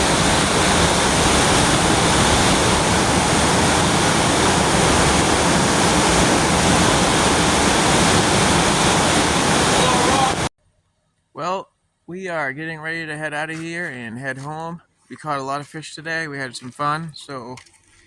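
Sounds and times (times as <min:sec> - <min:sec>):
river water rushing: 0:00.0 - 0:10.5.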